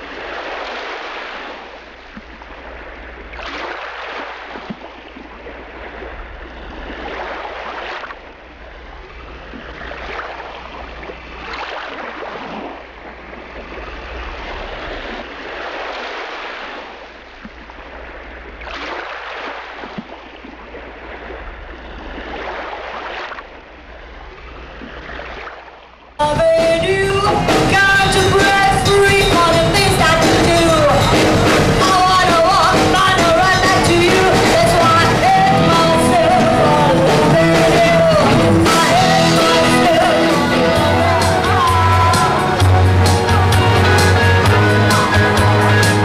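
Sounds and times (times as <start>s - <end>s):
sea surf washing onto shore: 0.0s - 25.6s, 26.2s - 46.0s.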